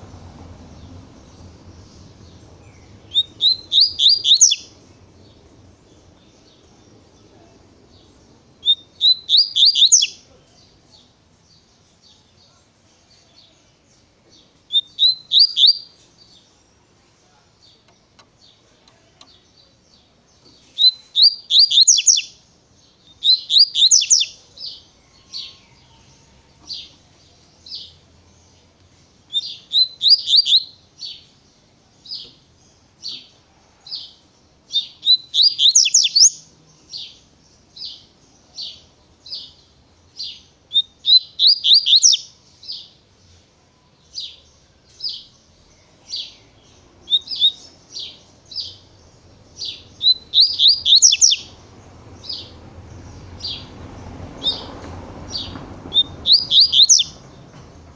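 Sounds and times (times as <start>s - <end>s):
bird singing sharp high notes: 1.2s - 4.8s, 8.6s - 10.2s, 29.3s - 31.2s, 34.8s - 36.4s, 49.6s - 51.6s, 55.4s - 57.3s.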